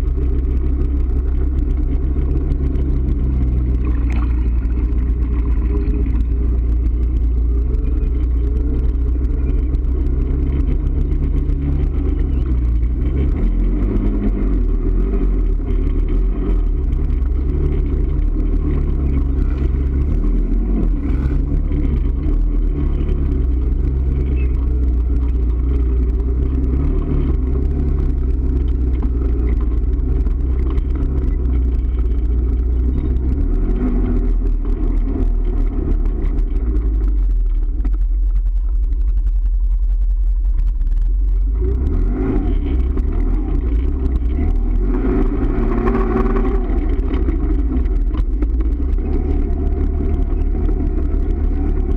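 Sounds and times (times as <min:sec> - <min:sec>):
vehicle engine rumbling under load: 0:00.0 - 0:51.9.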